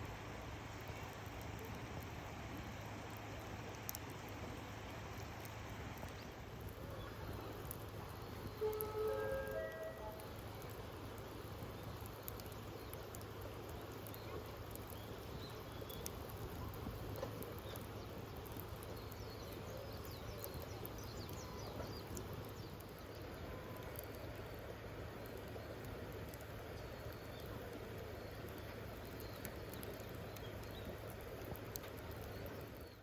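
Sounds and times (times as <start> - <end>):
campfire crackling: 0.0 - 33.0
steady hiss: 0.0 - 33.0
small pops: 0.8 - 8.0, 25.2 - 33.0.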